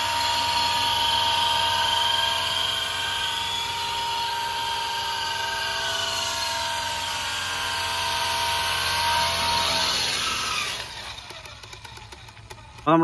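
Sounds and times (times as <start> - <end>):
toy helicopter motors whining: 0.0 - 13.0.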